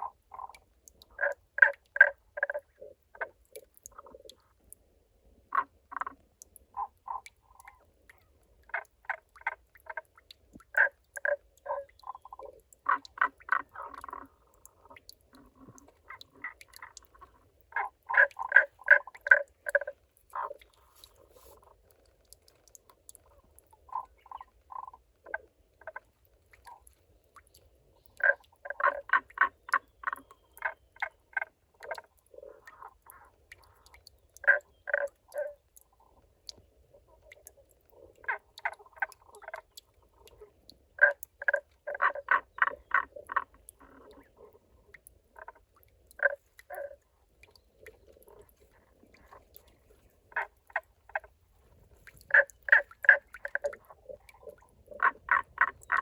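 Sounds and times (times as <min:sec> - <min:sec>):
frogs calling: 0:00.0 - 0:04.3, 0:10.7 - 0:21.1, 0:28.2 - 0:36.1, 0:37.1 - 0:51.4, 0:52.1 - 0:56.0.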